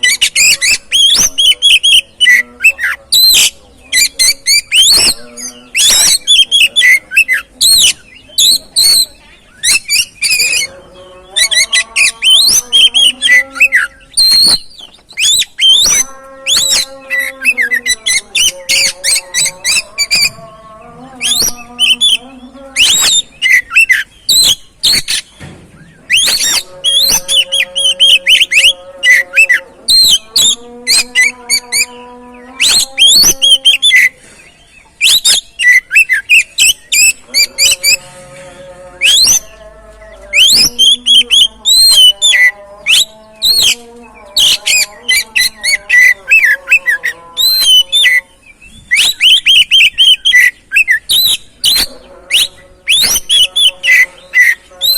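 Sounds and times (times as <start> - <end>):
bird whistles and chirps: 11.4 - 20.4, 21.2 - 22.2, 22.8 - 31.9, 32.6 - 38.0, 40.4 - 43.8, 44.4 - 54.9.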